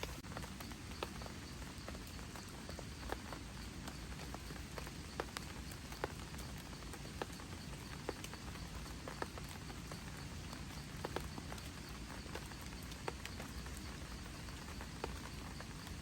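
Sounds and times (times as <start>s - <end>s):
heavy raindrops tapping: 0.0s - 16.0s.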